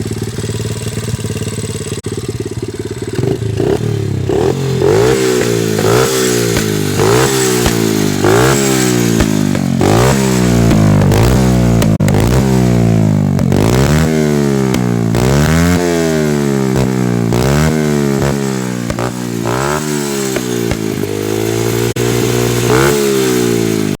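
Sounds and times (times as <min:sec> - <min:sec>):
motorbike engine revving: 0:00.0 - 0:24.0.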